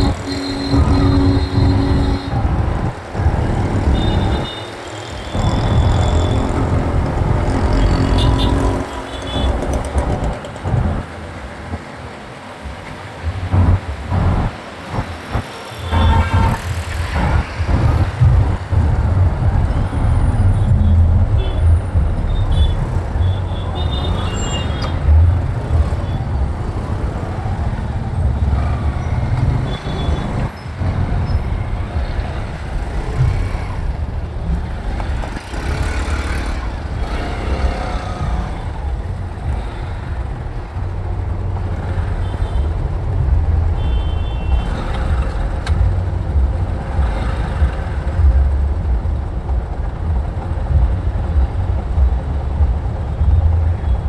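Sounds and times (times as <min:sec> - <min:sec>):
motorcycle engine: 0:00.0 - 0:11.2, 0:13.4 - 0:54.0
wind rumble on microphone: 0:16.0 - 0:23.8.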